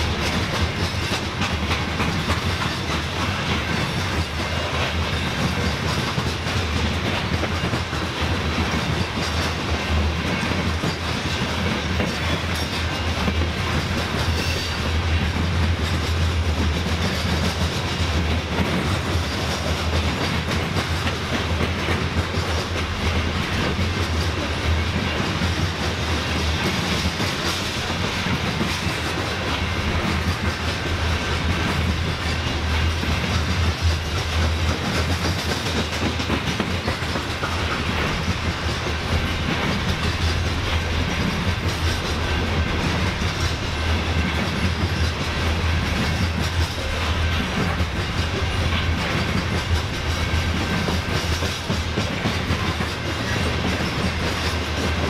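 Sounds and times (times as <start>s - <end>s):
railcars rolling past: 0.0s - 55.0s.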